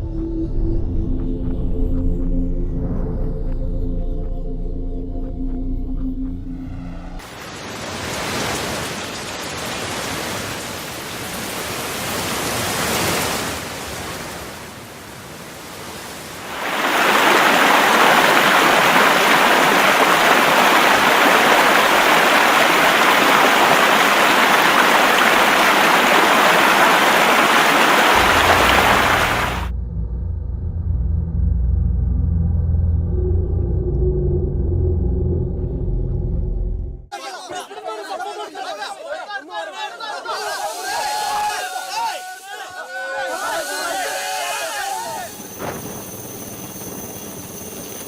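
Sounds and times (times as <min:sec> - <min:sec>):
rushing water: 0:07.2 - 0:29.7.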